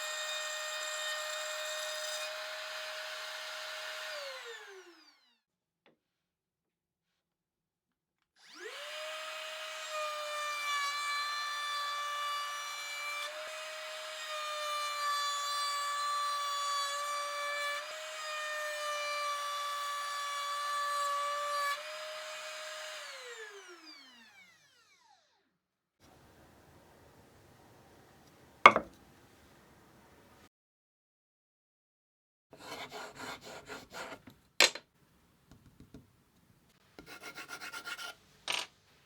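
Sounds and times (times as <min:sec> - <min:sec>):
router cutting wood: 0:00.0 - 0:05.3, 0:08.4 - 0:25.2, 0:28.2 - 0:30.4
router whining: 0:03.5 - 0:05.3.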